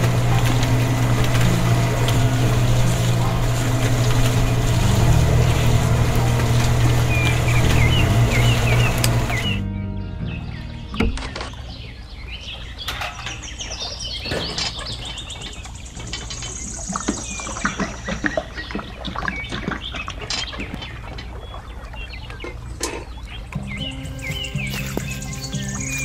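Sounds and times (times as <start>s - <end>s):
small birds chirping: 0.0s - 26.0s
high bird trill: 5.5s - 17.7s, 23.3s - 26.0s.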